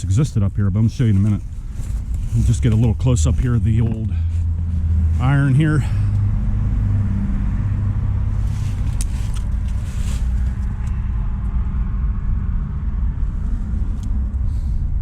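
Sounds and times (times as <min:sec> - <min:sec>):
rustles and clicks: 0:00.0 - 0:04.8, 0:08.4 - 0:11.0
low rumble of road traffic: 0:00.0 - 0:15.0.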